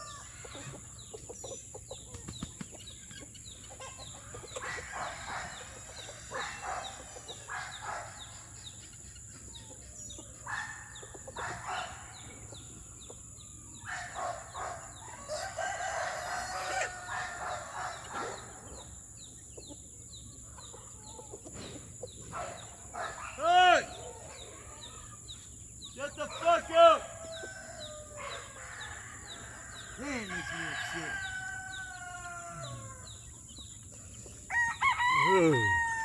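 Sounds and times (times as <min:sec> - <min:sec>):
chickens clucking: 0:00.0 - 0:36.0
rooster crowing: 0:14.9 - 0:18.2, 0:26.6 - 0:33.3, 0:34.5 - 0:36.0.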